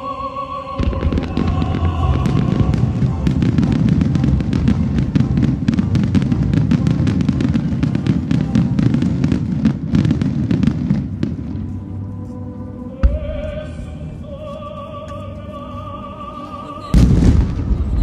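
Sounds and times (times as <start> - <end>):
orchestral soundtrack: 0.0 - 18.0
booming rumble: 0.8 - 11.6
fireworks bangs and crackles: 0.8 - 11.9, 16.9 - 18.0.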